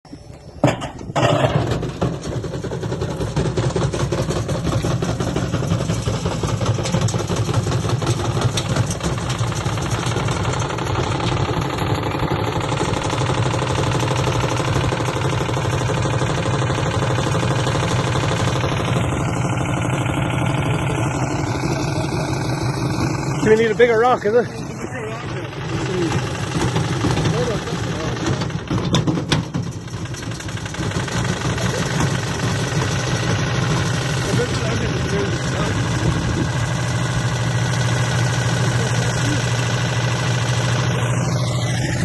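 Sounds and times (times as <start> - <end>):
washing machine banging and rattling: 26.5 - 32.2.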